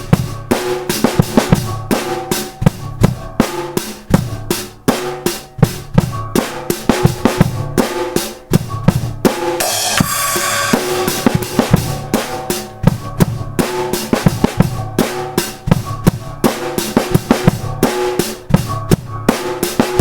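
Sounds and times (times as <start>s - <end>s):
drum kit groove: 0.0s - 20.0s
cymbal crash: 9.6s - 12.3s.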